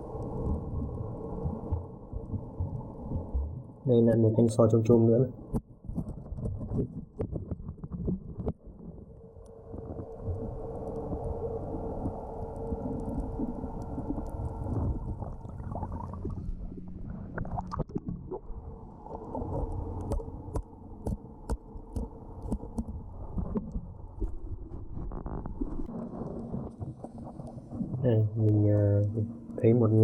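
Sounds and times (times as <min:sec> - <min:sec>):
boat motor hum underwater: 0:00.0 - 0:30.0
underwater rumble of moving water: 0:00.0 - 0:30.0.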